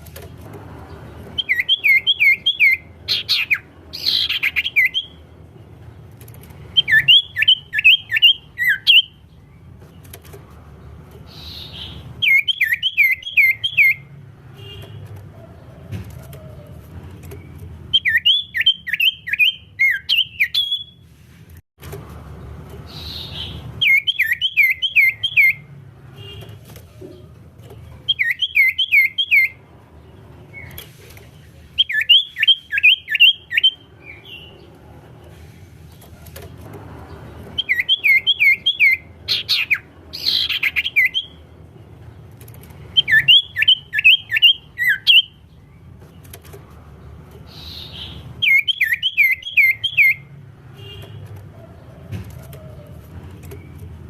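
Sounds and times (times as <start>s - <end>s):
songbird whistling: 1.4s - 5.2s, 6.8s - 9.2s, 11.3s - 14.1s, 17.9s - 21.0s, 22.9s - 25.7s, 28.1s - 29.6s, 31.8s - 34.5s, 37.6s - 41.4s, 42.9s - 45.4s, 47.5s - 50.3s.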